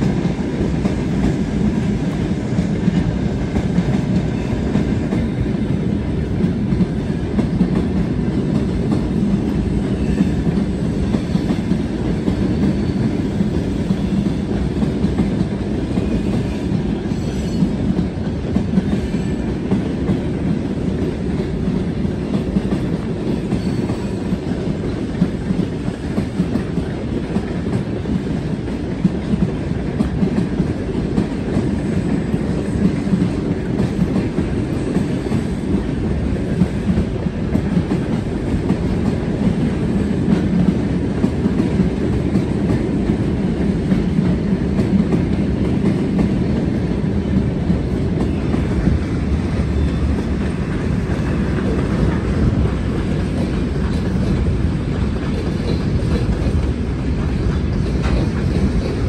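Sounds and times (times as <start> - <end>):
train coaches rolling past: 0.0 - 59.0
wheels clacking over rail joints: 49.6 - 59.0.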